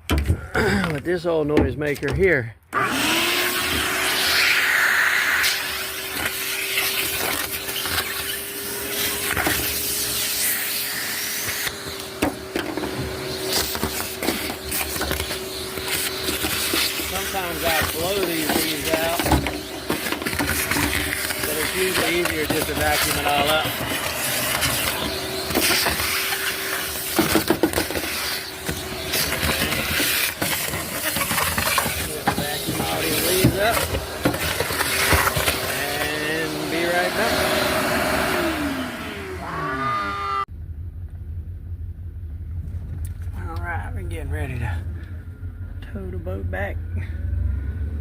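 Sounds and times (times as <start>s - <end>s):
vacuum motor hum: 2.7s - 40.5s.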